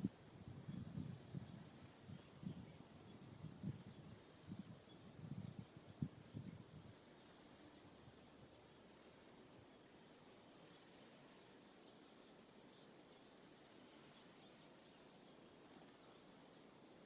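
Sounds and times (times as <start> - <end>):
high-pitched insect buzzes: 0.0 - 1.4, 2.9 - 5.0, 10.8 - 16.0.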